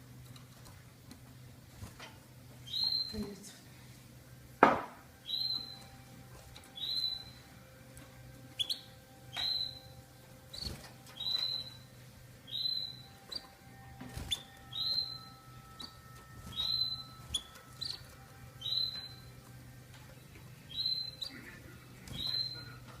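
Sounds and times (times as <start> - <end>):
canary calling: 2.6 - 3.3, 5.2 - 5.9, 6.7 - 7.5, 8.5 - 19.5, 20.2 - 23.0.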